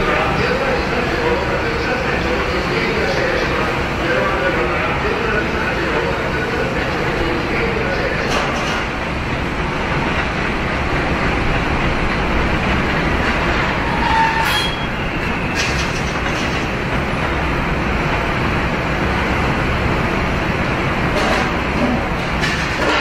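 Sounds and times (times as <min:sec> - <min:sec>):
wheel squeal: 0:13.8 - 0:15.9.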